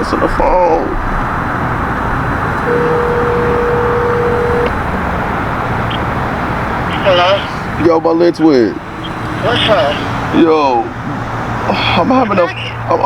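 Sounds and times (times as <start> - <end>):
traffic noise: 0.0 - 13.0
telephone ringback tone: 2.7 - 4.7.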